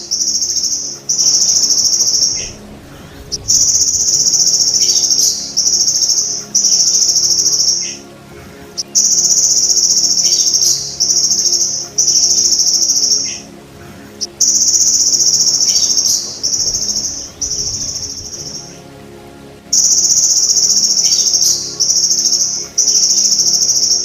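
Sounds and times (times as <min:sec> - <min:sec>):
grasshopper buzzing trill: 0:00.0 - 0:08.0, 0:14.2 - 0:18.8.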